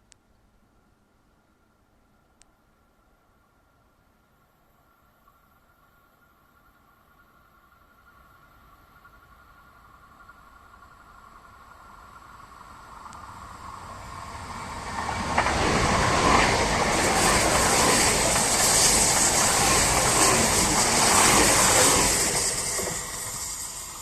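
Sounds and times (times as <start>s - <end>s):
wheels hissing on rail: 8.1s - 24.0s
train passing: 8.2s - 24.0s.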